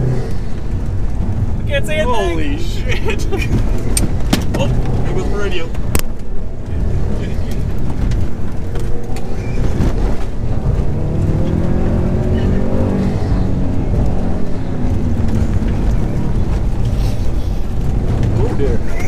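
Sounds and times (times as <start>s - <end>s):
car engine under hard driving: 0.0s - 19.0s
road and tyre noise: 0.0s - 19.0s.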